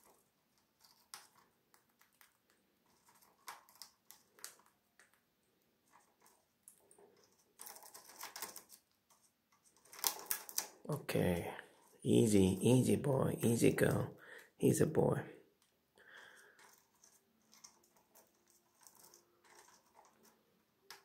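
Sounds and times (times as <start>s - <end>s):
bird beak cracking peanut shell: 9.9s - 10.8s.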